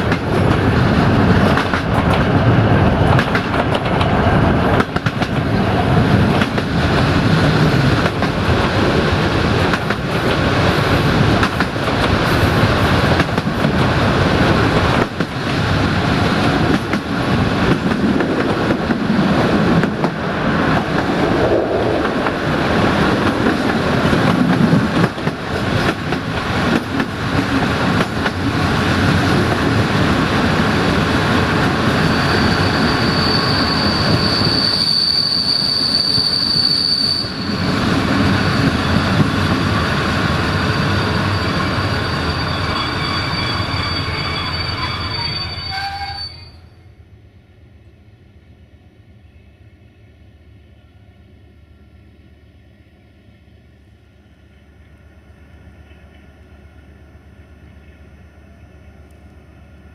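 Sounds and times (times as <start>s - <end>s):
train coach rolling and rattling: 0.0s - 36.6s
high squeal from train running gear: 31.6s - 47.0s.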